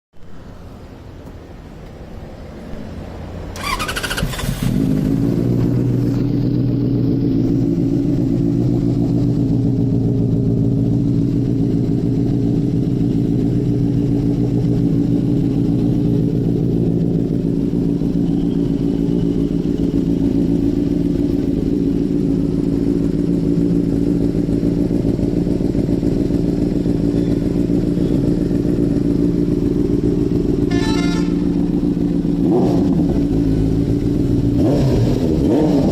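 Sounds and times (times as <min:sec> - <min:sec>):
motorcycle engine idling: 0:03.4 - 0:35.5
motorcycle starter cranking: 0:03.6 - 0:04.9.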